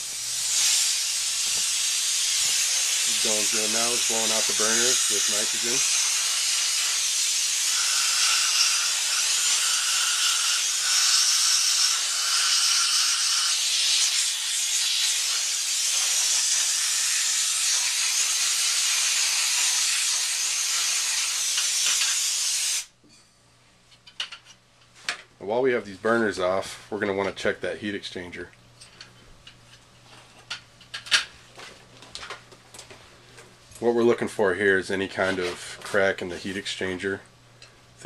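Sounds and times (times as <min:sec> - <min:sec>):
compressed gas hissing: 0:00.0 - 0:07.8, 0:10.7 - 0:22.9.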